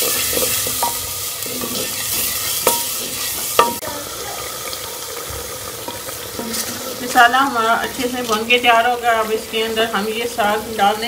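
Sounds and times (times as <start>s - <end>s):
spatula stirring: 0.0s - 3.8s
masala sizzling in a pot: 0.0s - 11.0s
spatula knocking against pot: 2.6s - 3.8s.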